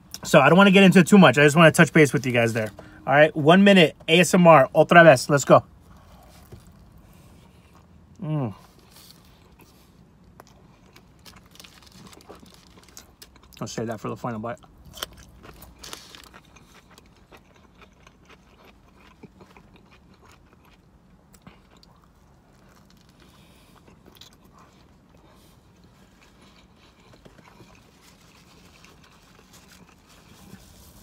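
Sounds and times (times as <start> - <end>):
chewing food: 8.6 - 13.6, 14.6 - 30.8.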